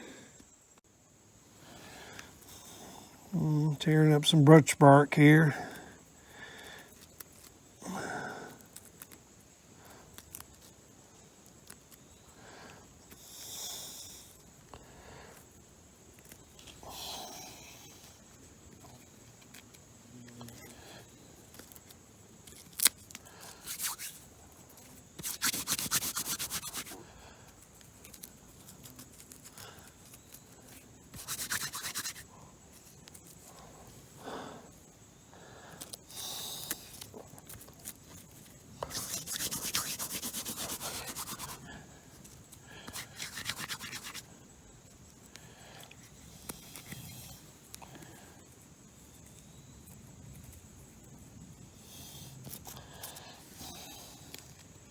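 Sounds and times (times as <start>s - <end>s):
bark tearing and rustling: 21.5s - 24.2s, 25.2s - 27.0s, 27.8s - 33.6s, 36.6s - 41.6s, 42.2s - 44.3s.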